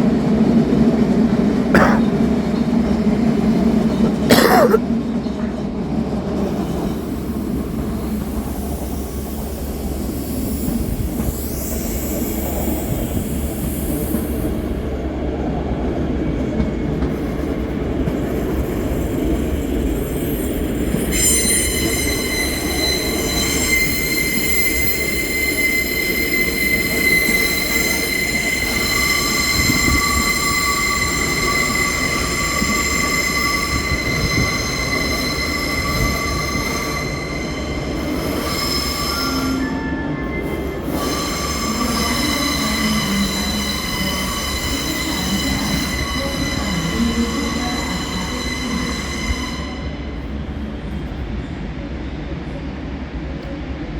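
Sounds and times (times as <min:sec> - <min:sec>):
train rumbling: 0:00.0 - 0:53.9
lower metal squeal: 0:20.0 - 0:50.1
high metal squeal: 0:20.2 - 0:50.0.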